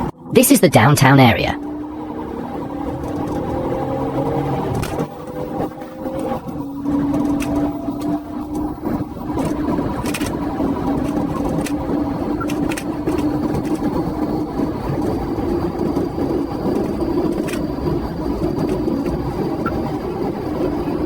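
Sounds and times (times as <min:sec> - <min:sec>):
car engine and road noise: 0:01.6 - 0:21.0
sharp clicks: 0:09.4 - 0:10.3, 0:12.4 - 0:13.8.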